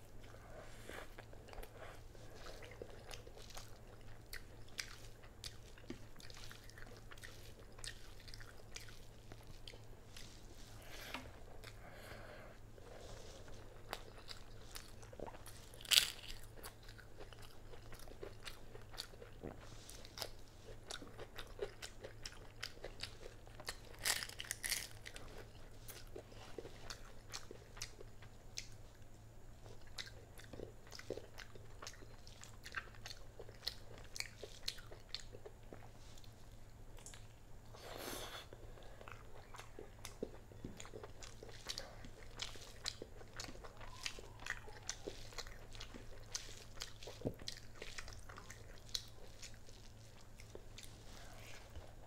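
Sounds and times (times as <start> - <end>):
wet chewing and smacking: 1.1 - 11.9, 12.8 - 37.4, 38.8 - 52.0
sharp crunches while eating: 13.8 - 28.0.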